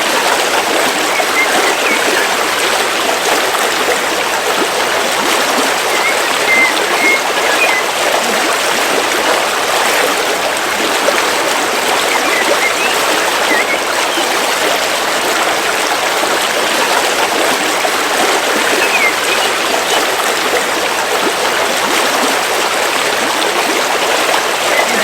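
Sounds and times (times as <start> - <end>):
river water flowing over rocks: 0.0 - 25.0
faint bird chirps: 5.9 - 7.9.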